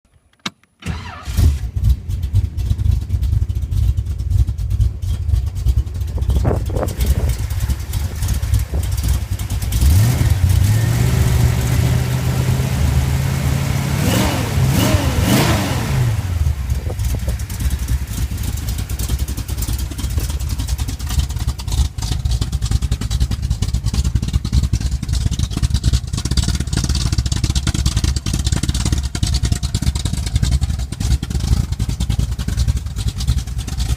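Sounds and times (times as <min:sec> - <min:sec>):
engine idling and revving: 0:00.8 - 0:33.9.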